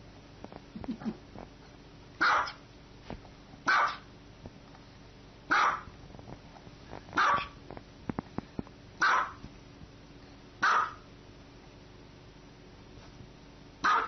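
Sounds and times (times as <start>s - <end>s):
small dog barking: 2.2s - 2.6s, 3.7s - 4.1s, 5.5s - 5.9s, 7.2s - 7.6s, 9.0s - 9.4s, 10.6s - 11.1s, 13.8s - 14.0s.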